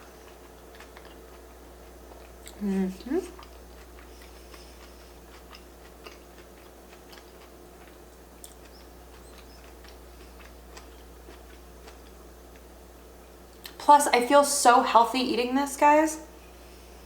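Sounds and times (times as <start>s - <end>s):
person chewing food: 0.0s - 12.8s
steady low hum: 0.0s - 17.0s.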